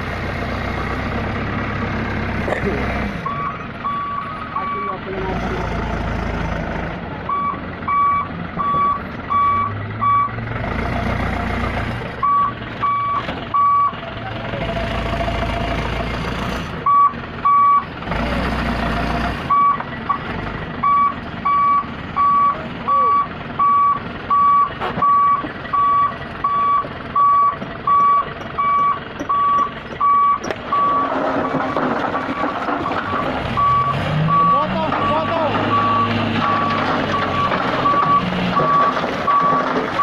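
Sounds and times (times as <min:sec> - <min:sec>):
truck engine running: 0:00.0 - 0:40.0
reversing alarm beeping: 0:03.3 - 0:05.0, 0:07.3 - 0:10.3, 0:12.2 - 0:14.0, 0:20.8 - 0:39.7.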